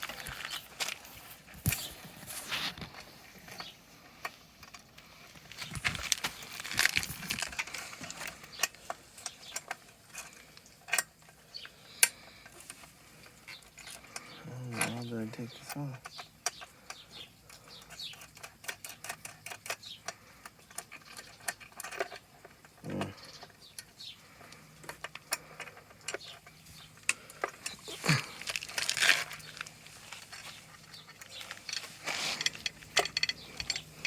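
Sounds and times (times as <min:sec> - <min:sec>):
metal parts clinking: 0:24.9 - 0:34.0.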